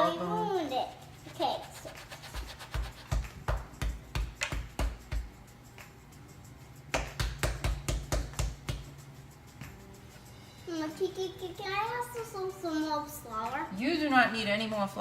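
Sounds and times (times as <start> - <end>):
rhythmic thumping on a counter: 1.3 - 6.0, 6.8 - 9.9.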